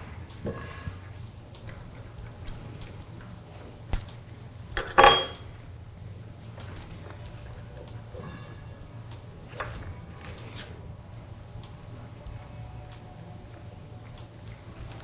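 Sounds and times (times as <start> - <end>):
small metal parts clinking: 4.8 - 5.4
ringing metal clink: 4.8 - 5.5.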